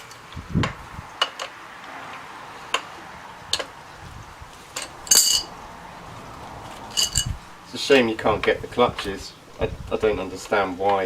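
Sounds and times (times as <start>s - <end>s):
metal tools clicking and knocking: 4.8s - 5.5s, 6.9s - 7.5s
ringing metallic clink: 4.8s - 5.6s, 6.9s - 7.6s.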